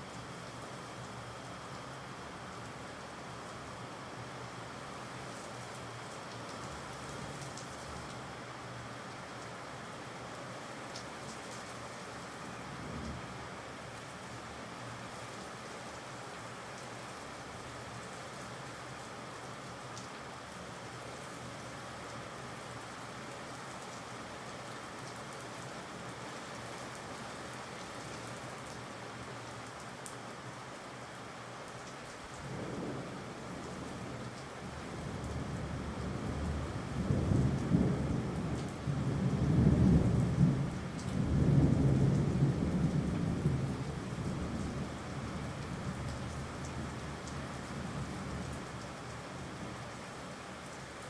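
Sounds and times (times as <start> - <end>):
steady rain: 0.0 - 51.0.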